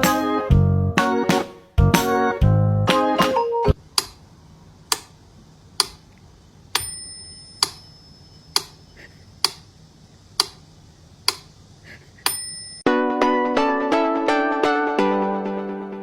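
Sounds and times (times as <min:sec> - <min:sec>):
sharp clock-like ticks: 0:03.9 - 0:04.2, 0:04.9 - 0:05.1, 0:05.8 - 0:06.0, 0:07.6 - 0:09.7, 0:10.4 - 0:10.6, 0:11.3 - 0:11.5
short bell-like ring: 0:06.8 - 0:08.5, 0:12.3 - 0:12.9.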